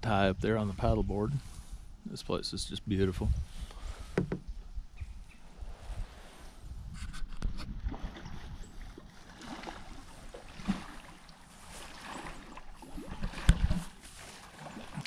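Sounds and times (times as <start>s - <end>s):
knocks on kayak: 4.1s - 4.5s
paddle blades dipping in water: 7.5s - 15.0s.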